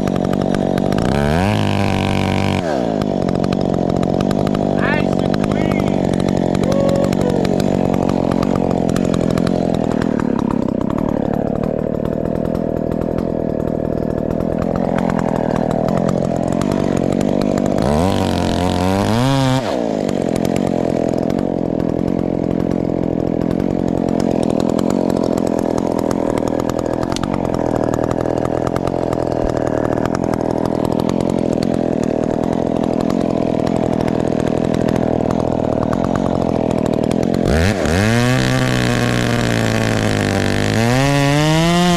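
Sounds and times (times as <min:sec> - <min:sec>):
chainsaw running at high revs: 0:00.0 - 0:41.9.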